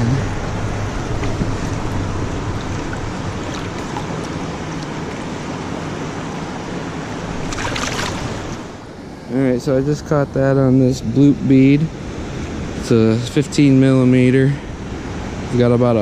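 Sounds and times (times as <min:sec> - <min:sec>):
river water rushing: 0:00.0 - 0:09.3.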